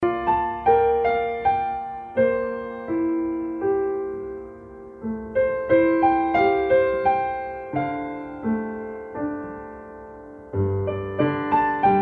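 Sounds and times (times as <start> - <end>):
slow gentle piano music: 0.0 - 12.0.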